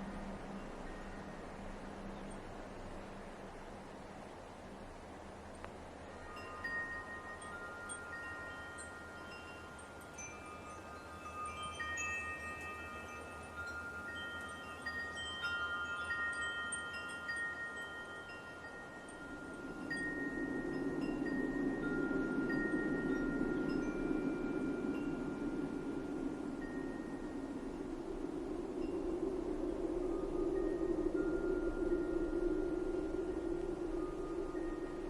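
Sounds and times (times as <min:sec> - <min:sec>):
wind chimes ringing: 0:00.0 - 0:02.9, 0:06.0 - 0:35.0
steady background hiss: 0:00.0 - 0:35.0.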